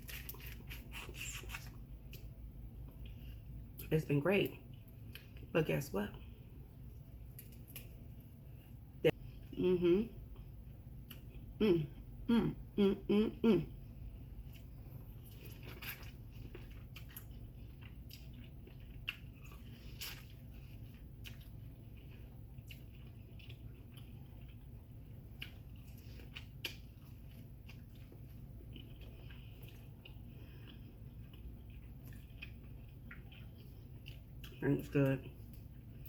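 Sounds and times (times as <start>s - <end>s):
chewing and biting food: 0.0s - 2.3s, 14.4s - 36.0s.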